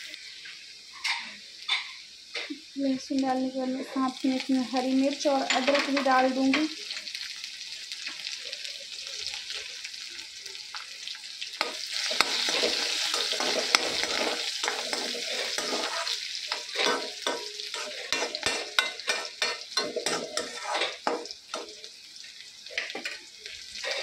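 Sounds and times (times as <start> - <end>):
food sizzling in hot oil: 0.0 - 24.0
metal spatula scraping a pan: 11.6 - 21.8, 22.7 - 24.0.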